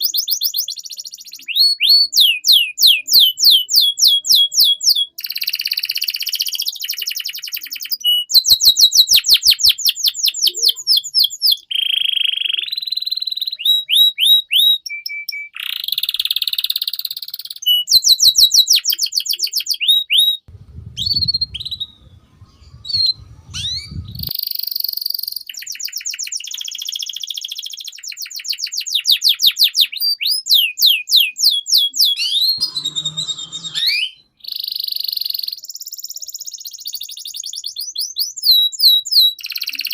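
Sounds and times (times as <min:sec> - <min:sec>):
canary singing: 0:00.0 - 0:39.9
low rumble: 0:20.5 - 0:24.3.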